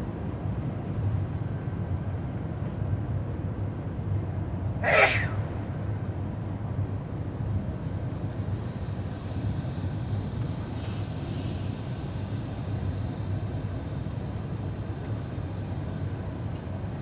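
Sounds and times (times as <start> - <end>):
soft hiss: 4.8 - 6.1.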